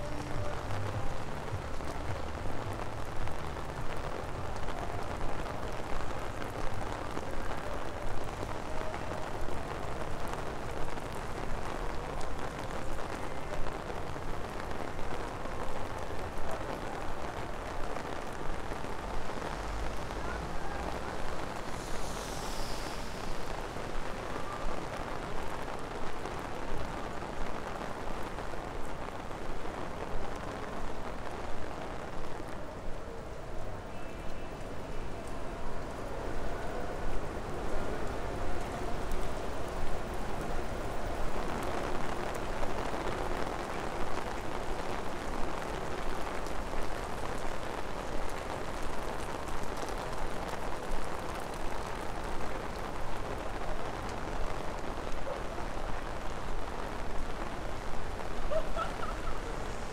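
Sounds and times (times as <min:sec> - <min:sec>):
rain on wet pavement: 0:00.0 - 0:59.9.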